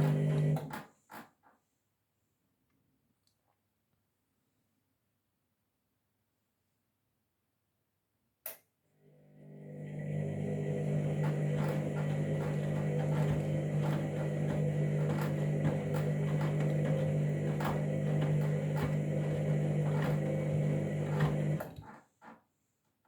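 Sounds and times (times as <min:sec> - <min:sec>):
washing machine humming: 0:00.0 - 0:00.8, 0:09.3 - 0:21.9.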